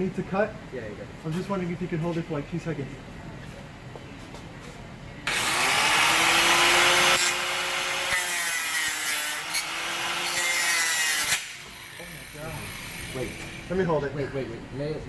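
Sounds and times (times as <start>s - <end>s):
power tool cutting steel pipe: 5.3s - 13.8s.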